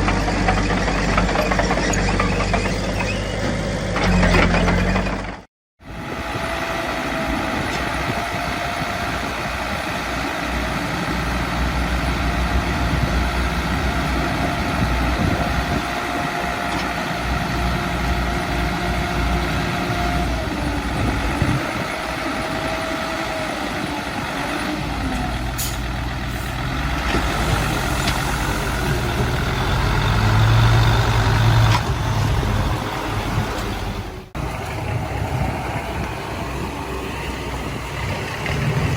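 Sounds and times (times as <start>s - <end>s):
diesel machinery engine running: 0.0s - 38.9s.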